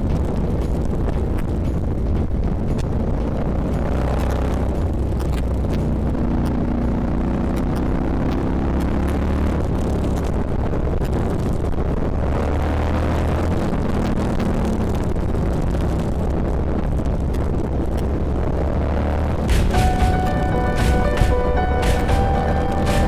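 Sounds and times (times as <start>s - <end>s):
motorcycle engine running: 0.0s - 12.4s
wind noise on microphone: 0.0s - 19.8s.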